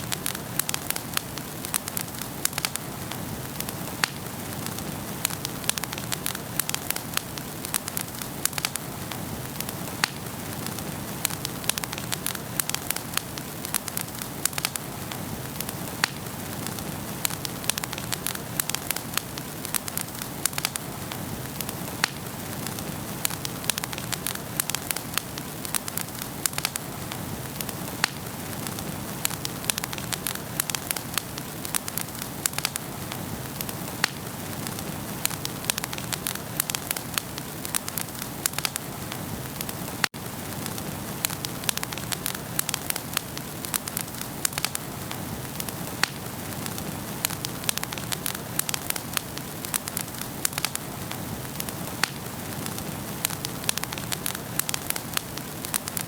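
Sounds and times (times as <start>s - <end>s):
hiss of flames: 0.0s - 56.0s
wood fire crackling and popping: 0.0s - 56.0s.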